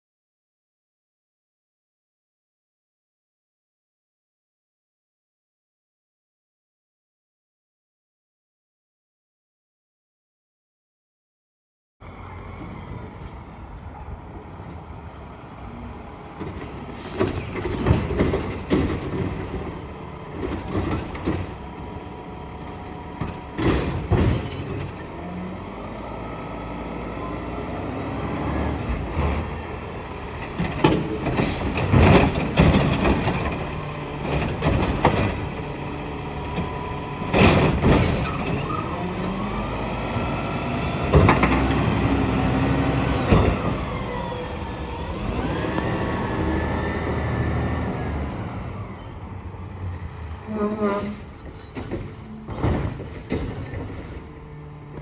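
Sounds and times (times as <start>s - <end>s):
garbage truck engine running: 17.0s - 50.8s
metal clanks and bangs: 52.0s - 55.0s.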